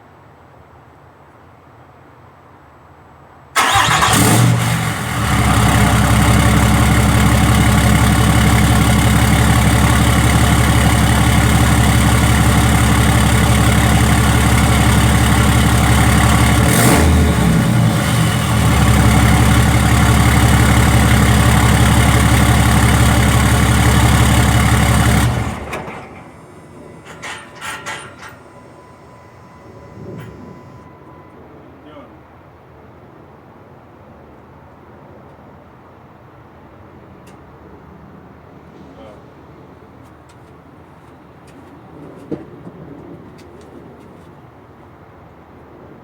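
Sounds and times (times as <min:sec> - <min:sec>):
diesel engine starting and idling: 0:03.6 - 0:31.6.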